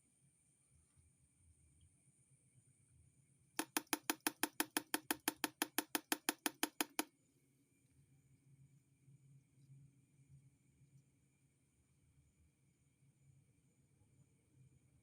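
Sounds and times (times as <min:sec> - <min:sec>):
rapid sharp knocks: 0:03.6 - 0:07.0.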